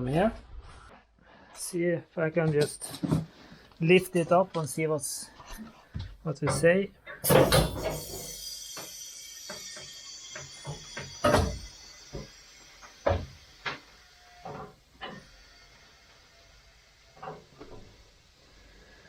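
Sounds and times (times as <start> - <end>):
high hiss: 7.2 - 19.0.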